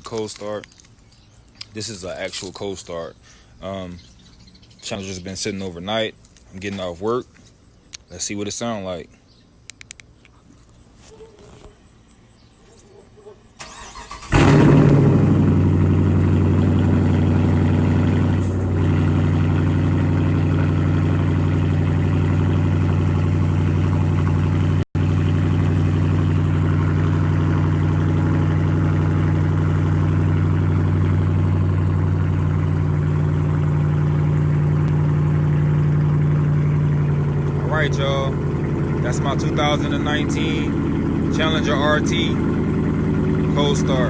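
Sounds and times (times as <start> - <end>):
car engine idling loudly: 14.4 - 44.0.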